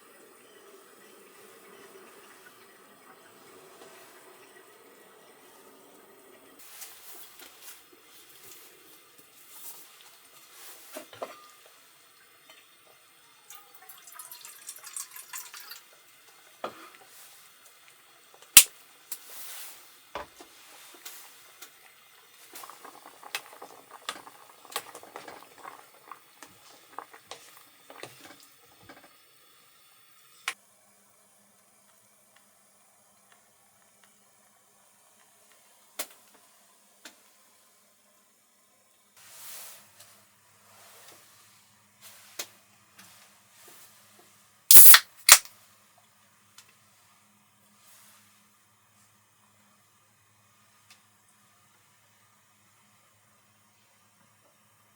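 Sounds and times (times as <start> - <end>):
water pouring: 13.5 - 16.0, 22.0 - 28.5
small objects clicking and knocking: 44.7 - 45.4.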